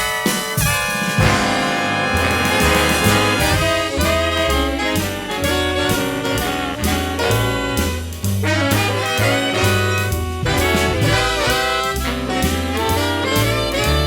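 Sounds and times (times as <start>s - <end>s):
jazz big band playing: 0.0s - 14.0s.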